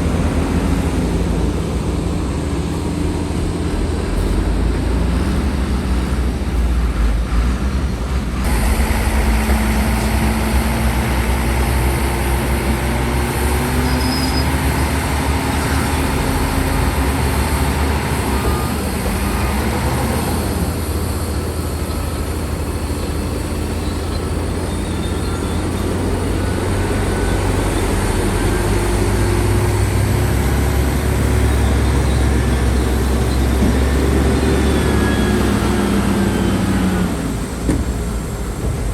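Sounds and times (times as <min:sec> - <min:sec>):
heavy diesel machinery rumbling: 0:00.0 - 0:38.9
faint squealing tones: 0:13.6 - 0:14.8, 0:23.0 - 0:28.9.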